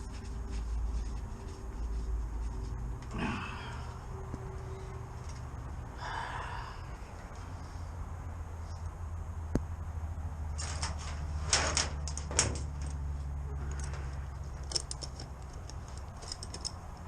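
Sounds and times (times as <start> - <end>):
steady low hum: 0.0 - 17.0
rattles: 10.5 - 17.0
metal hose fittings clinking: 13.6 - 17.0.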